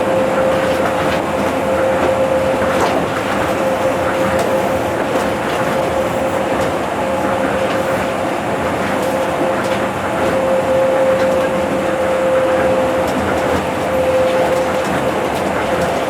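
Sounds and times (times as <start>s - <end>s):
monorail train running: 0.0s - 16.0s.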